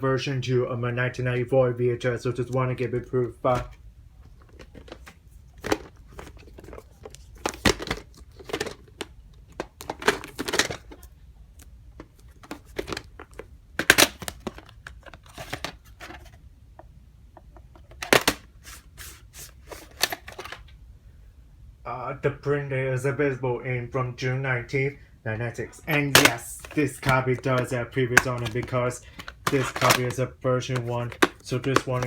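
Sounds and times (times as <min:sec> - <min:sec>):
plastic cassette case handled: 0:03.3 - 0:16.4, 0:17.4 - 0:20.8, 0:25.8 - 0:32.0.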